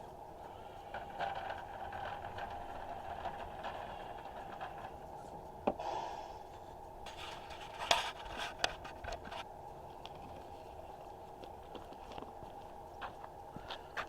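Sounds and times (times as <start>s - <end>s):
sharp clicks and scrapes: 0.5s - 5.6s, 6.4s - 9.5s.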